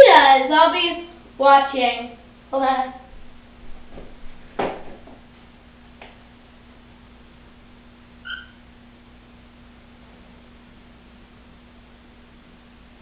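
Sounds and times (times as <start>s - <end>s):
steady low hum: 0.0s - 13.0s
cockatiel chirp: 8.2s - 8.6s.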